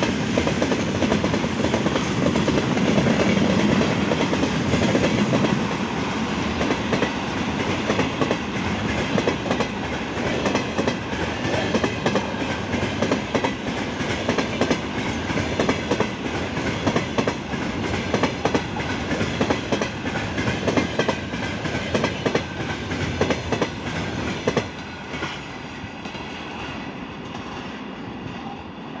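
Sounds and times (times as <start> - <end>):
train wheels clattering over rails: 0.0 - 27.8.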